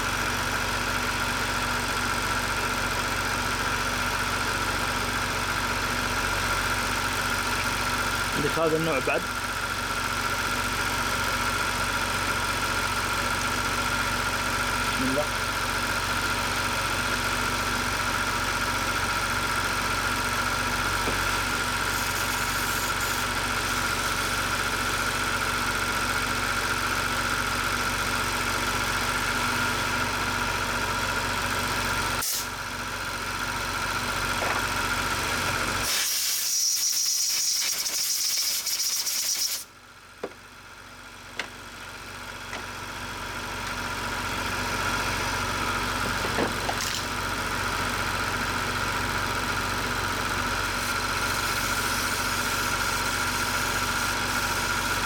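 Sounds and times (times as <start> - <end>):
car engine idling: 0.1 - 35.9, 39.7 - 55.0
loud hiss: 35.8 - 39.6.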